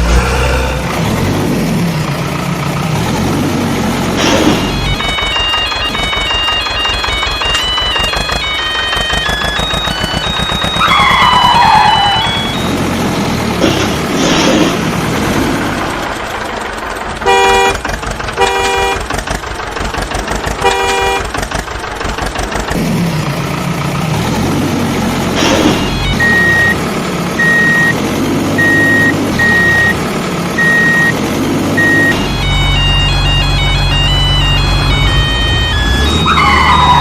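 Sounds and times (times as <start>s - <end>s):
cartoon engine running: 4.2s - 12.8s, 30.6s - 37.0s
horn tooting: 17.2s - 19.1s, 20.6s - 21.4s, 31.8s - 37.0s
high beep: 25.4s - 26.8s, 28.6s - 30.0s, 31.8s - 37.0s.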